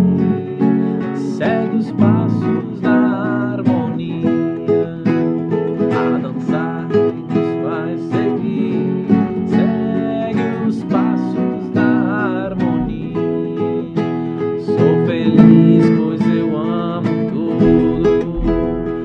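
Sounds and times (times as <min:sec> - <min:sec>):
acoustic guitar strumming: 0:00.0 - 0:19.0
person singing wordlessly: 0:00.0 - 0:19.0.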